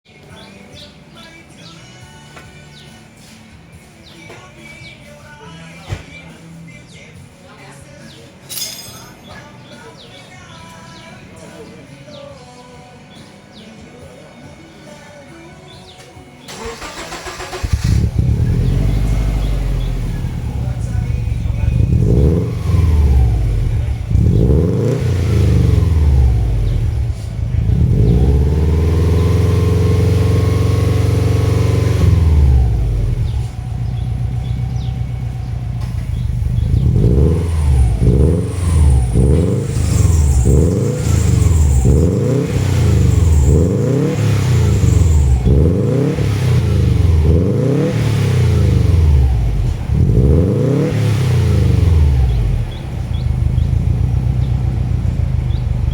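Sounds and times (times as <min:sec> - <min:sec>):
car engine revving: 0:16.5 - 0:55.9.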